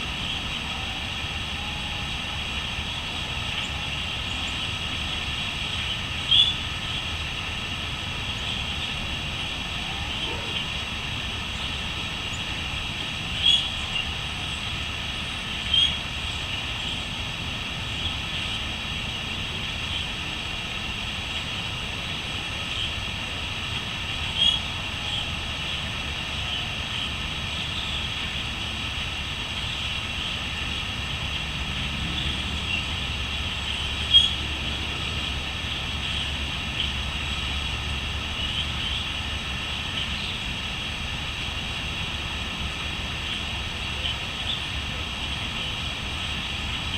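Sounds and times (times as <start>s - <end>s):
crickets trilling: 0.0s - 46.9s
low steady rumble: 0.0s - 46.9s
bird chirps: 13.4s - 13.8s.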